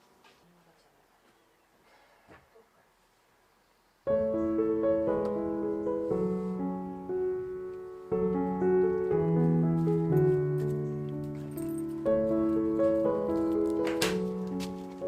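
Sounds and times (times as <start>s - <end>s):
piano music: 4.1s - 15.0s.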